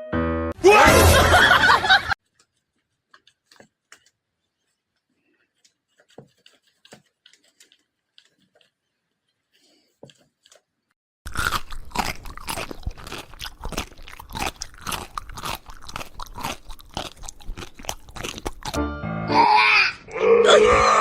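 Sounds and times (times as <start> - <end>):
rapid crunching: 2.2 - 18.8.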